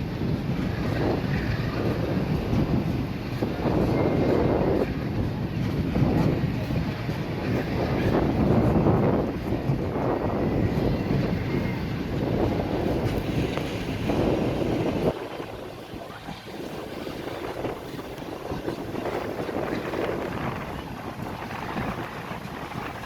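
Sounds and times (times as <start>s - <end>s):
train rumbling: 0.0s - 23.0s
wind buffeting microphone: 0.0s - 23.0s.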